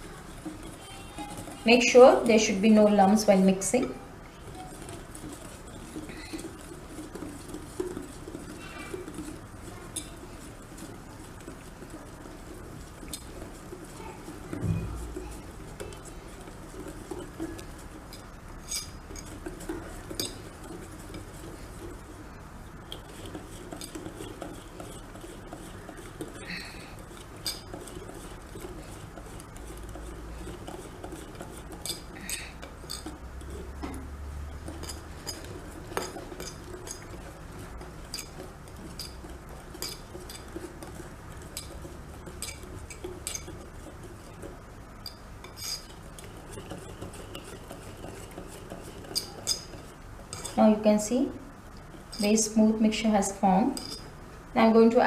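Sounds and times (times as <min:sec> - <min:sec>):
utensil stirring batter: 0:00.0 - 0:55.0
utensil clinking against bowl: 0:16.7 - 0:21.9, 0:22.9 - 0:34.0, 0:34.6 - 0:50.6, 0:53.2 - 0:54.1.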